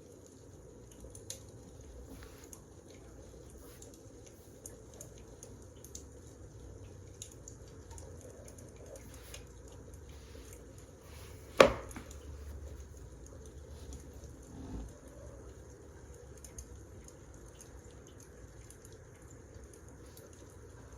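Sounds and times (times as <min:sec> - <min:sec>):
loud sharp knock: 0:11.6 - 0:12.1.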